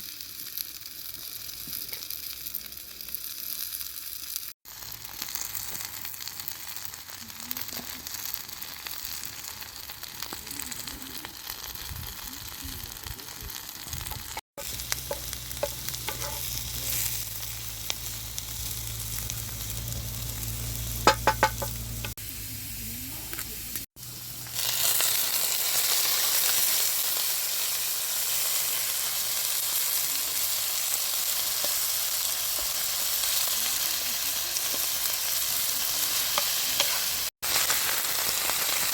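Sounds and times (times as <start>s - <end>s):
food sizzling in a pan: 0.0s - 38.9s
utensil clinking on pan: 21.1s - 21.8s.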